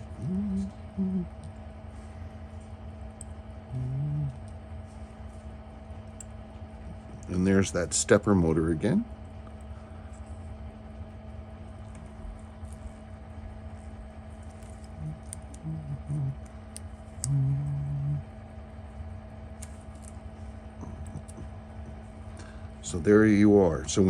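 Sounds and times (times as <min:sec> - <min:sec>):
person humming: 0:00.0 - 0:01.6, 0:03.7 - 0:04.6, 0:14.9 - 0:16.5, 0:17.2 - 0:18.4
steady electrical hum: 0:00.0 - 0:24.0.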